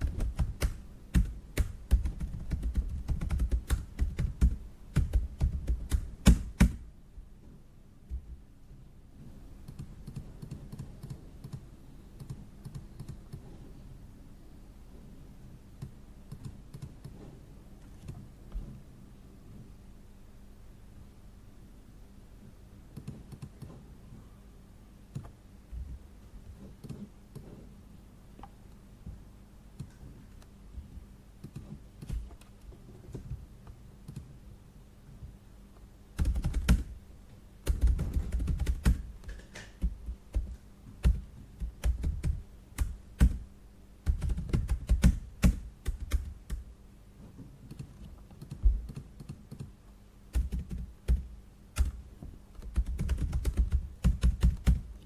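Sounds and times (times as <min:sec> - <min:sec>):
typing on computer keyboard: 0:00.0 - 0:06.8, 0:09.6 - 0:11.6, 0:12.2 - 0:13.5, 0:15.8 - 0:17.2, 0:23.0 - 0:23.8, 0:31.4 - 0:32.5, 0:34.1 - 0:34.3, 0:36.2 - 0:37.0, 0:37.6 - 0:46.6, 0:47.7 - 0:49.7, 0:50.3 - 0:52.0, 0:52.6 - 0:55.0.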